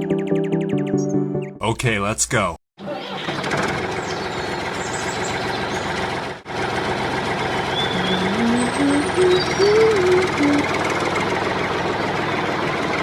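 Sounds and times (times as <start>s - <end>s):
rising notes: 7.8s - 10.8s.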